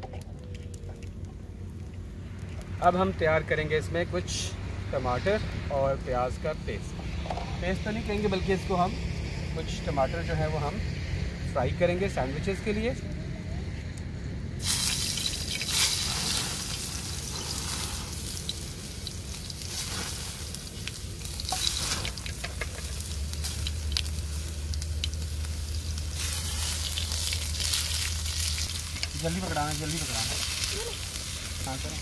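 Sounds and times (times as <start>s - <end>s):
oil popping and spitting: 14.6s - 29.2s
food sizzling in hot oil: 14.6s - 32.0s.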